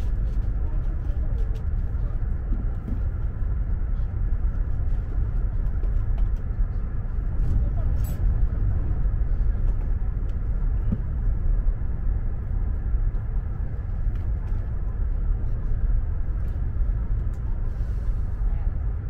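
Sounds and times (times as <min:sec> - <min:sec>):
train rumbling inside carriage: 0:00.0 - 0:19.0.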